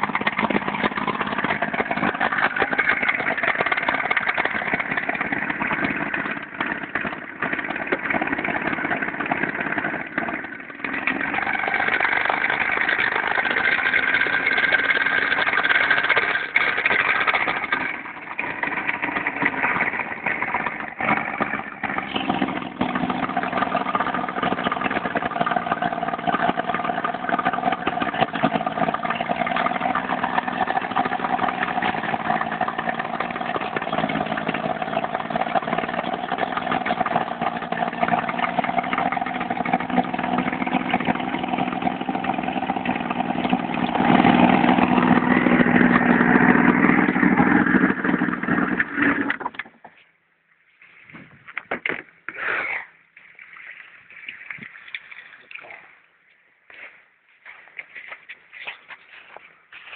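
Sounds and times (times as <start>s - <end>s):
outboard motor running: 0.0s - 49.9s.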